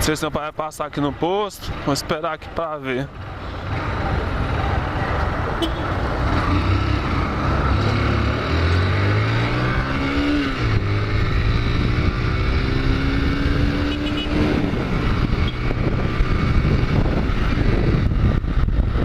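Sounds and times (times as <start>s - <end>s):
road and wind noise: 0.0s - 19.0s
motorcycle engine accelerating: 6.0s - 19.0s.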